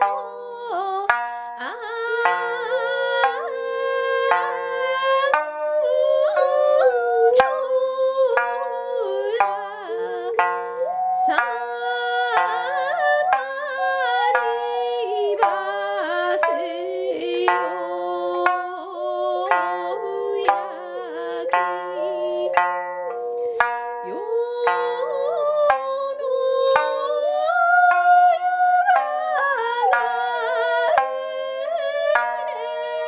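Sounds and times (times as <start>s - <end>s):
plucked lute notes: 0.0s - 27.0s
sliding held melody: 0.0s - 33.0s.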